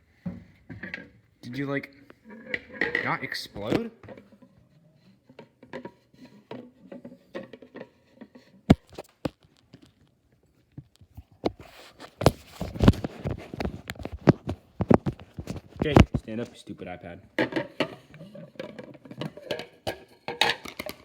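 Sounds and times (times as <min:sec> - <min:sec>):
objects knocking: 0:02.3 - 0:04.6, 0:05.3 - 0:09.9, 0:10.8 - 0:16.6, 0:17.3 - 0:21.0.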